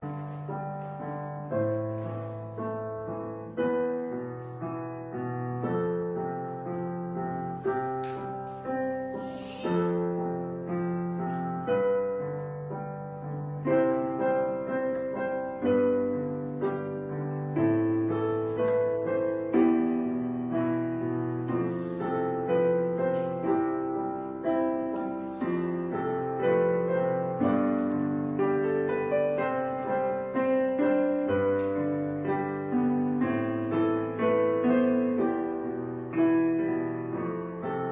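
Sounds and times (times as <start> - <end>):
slow gentle piano chords: 0.0 - 37.9.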